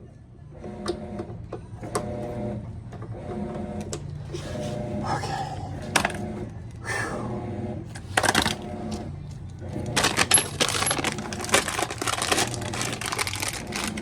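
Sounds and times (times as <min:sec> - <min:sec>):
steady low hum: 0:04.1 - 0:14.0
metal tools clinking and clattering: 0:09.8 - 0:14.0.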